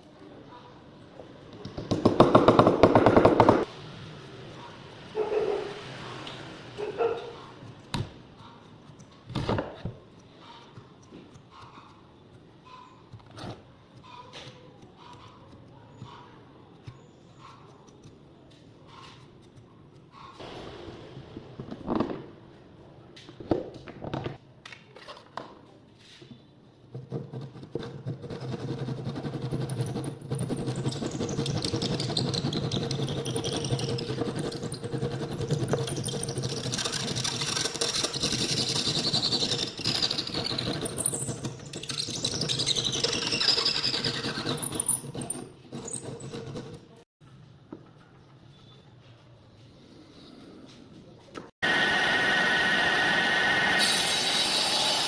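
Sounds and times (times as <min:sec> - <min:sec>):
power tool whining on wood: 0:51.6 - 0:55.0.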